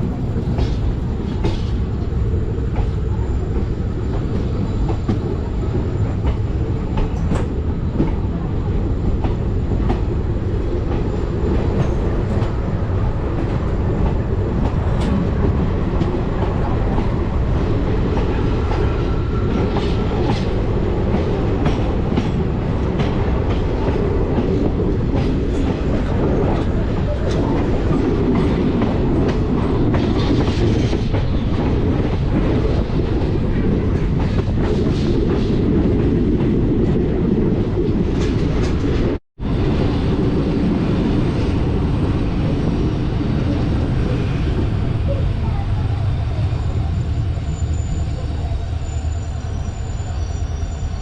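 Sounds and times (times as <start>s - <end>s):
train wheels rumbling: 0.0s - 51.0s.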